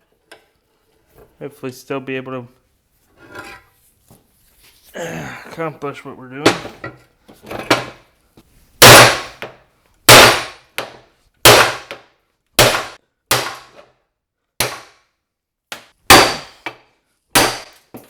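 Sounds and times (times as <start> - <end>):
hammer striking steel: 16.1 - 16.7.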